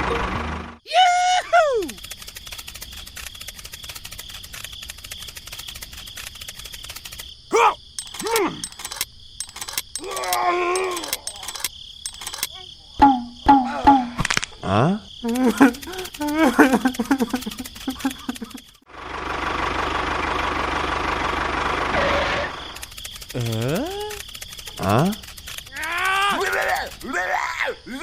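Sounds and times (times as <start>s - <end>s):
insects chirring: 0.9s - 18.9s, 22.0s - 28.0s
short voice-like calls: 7.5s - 8.7s.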